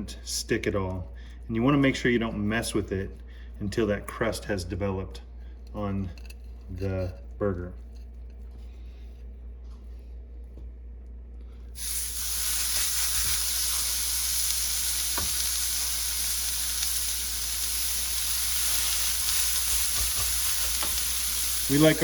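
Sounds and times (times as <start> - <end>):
burger patties sizzling on griddle: 11.8 - 22.0.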